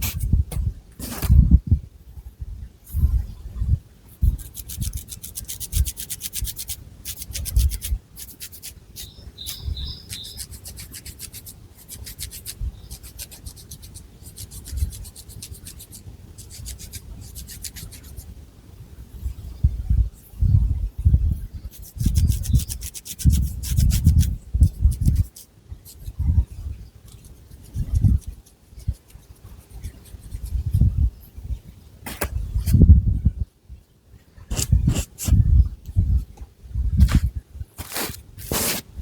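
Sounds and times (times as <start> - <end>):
fingernails scratching through hair: 4.2 - 18.3, 21.7 - 26.1, 27.1 - 30.8, 34.5 - 35.4, 37.0 - 38.8.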